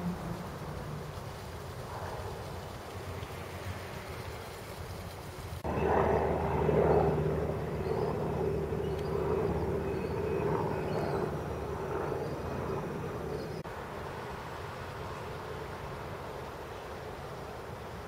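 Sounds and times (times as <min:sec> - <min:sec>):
low engine-like rumble: 0:00.0 - 0:13.7.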